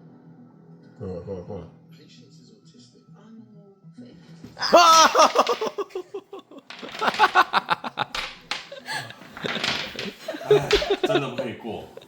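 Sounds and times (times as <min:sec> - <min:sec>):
loud voiced cry: 0:04.6 - 0:05.8
people laughing: 0:04.6 - 0:12.0.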